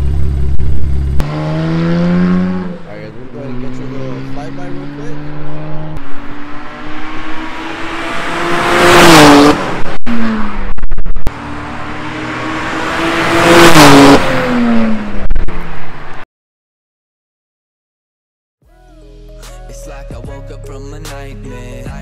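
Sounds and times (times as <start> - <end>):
car engine accelerating hard: 0.0 - 16.2.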